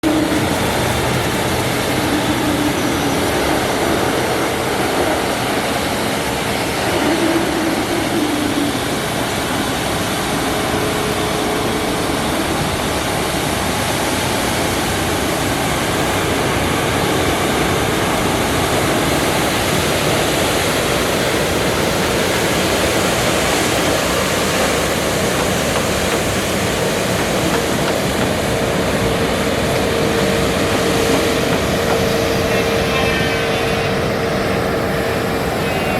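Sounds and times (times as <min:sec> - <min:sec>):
road sweeper rushing noise: 0:00.0 - 0:35.9.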